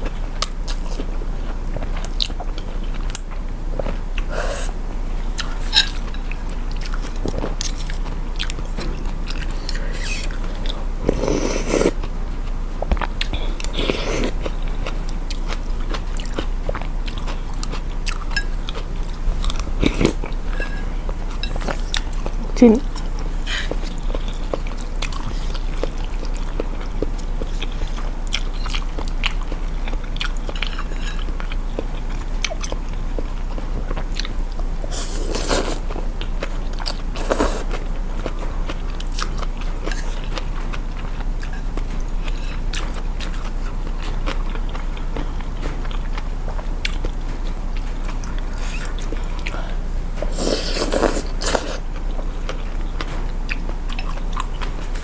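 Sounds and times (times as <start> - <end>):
chewing with mouth clicks: 0.0 - 55.0
loud eating bursts: 6.9 - 12.2, 13.1 - 28.2, 34.8 - 36.1, 36.8 - 38.0, 48.1 - 52.0.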